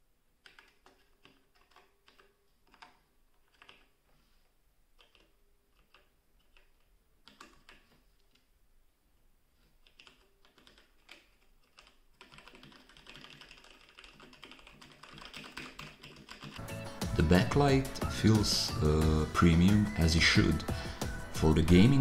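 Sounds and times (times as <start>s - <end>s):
typing on mechanical keyboard: 0.4s - 4.0s, 5.0s - 8.4s, 9.8s - 16.6s.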